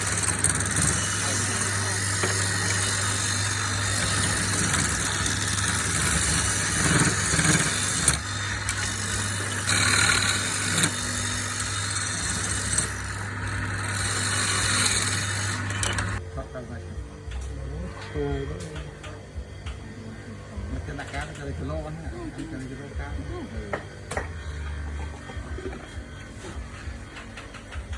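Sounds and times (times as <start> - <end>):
machine motor humming: 0.0 - 16.2.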